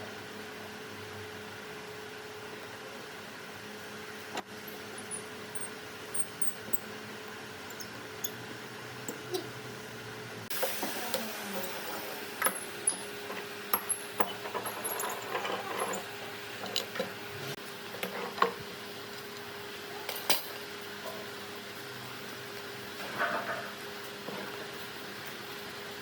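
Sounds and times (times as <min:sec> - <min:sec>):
faint steady hum: 0:04.3 - 0:17.6
tools clinking: 0:04.7 - 0:06.9, 0:07.7 - 0:08.5, 0:13.7 - 0:17.0.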